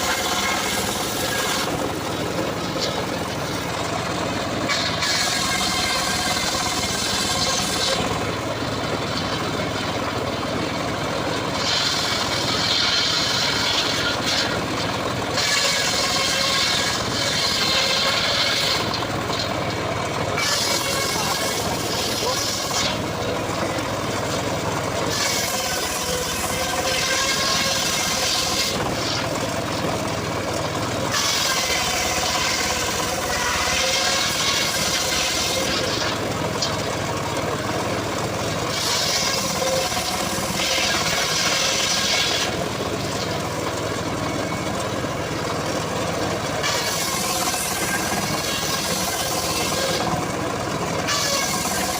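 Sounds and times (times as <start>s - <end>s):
circular saw blade cutting wood: 0.0s - 8.4s, 11.3s - 19.6s, 20.3s - 29.9s, 31.1s - 37.0s, 38.4s - 43.7s, 46.5s - 50.3s, 51.0s - 51.9s
saw engine running: 0.0s - 51.9s.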